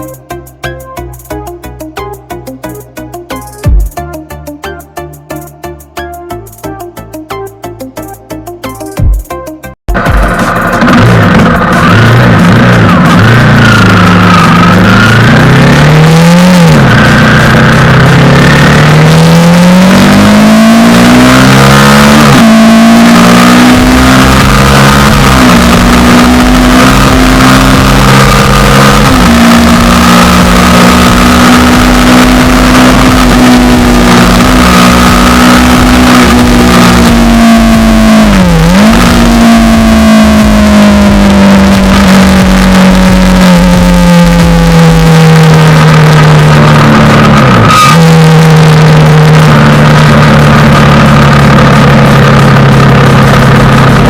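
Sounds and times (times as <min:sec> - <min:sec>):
motorcycle engine accelerating: 0:00.0 - 0:04.7, 0:05.4 - 0:54.0.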